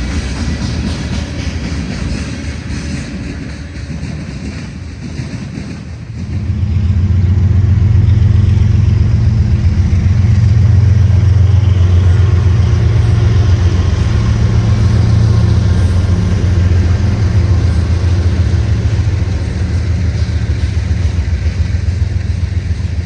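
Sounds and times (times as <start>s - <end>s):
diesel locomotive engine humming: 0.0s - 23.0s.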